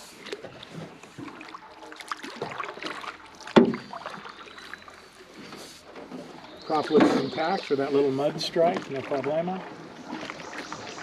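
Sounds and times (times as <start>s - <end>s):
knocks and clatter in boat hull: 2.4s - 4.3s, 8.6s - 9.1s.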